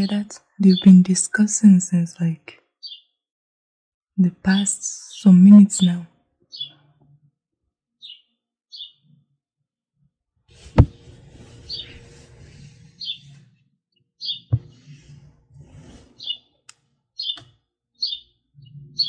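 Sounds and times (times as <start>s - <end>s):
songbirds chirping: 0.0s - 3.2s, 4.2s - 7.2s, 8.0s - 9.2s, 11.4s - 19.0s.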